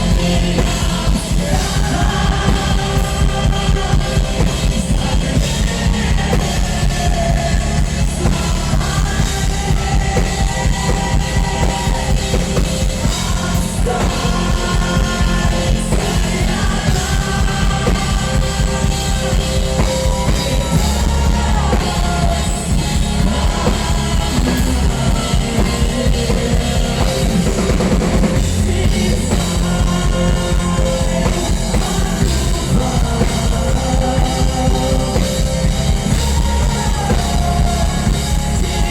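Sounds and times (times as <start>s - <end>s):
lead vocal singing: 0.0s - 38.9s
live rock band playing: 0.0s - 38.9s.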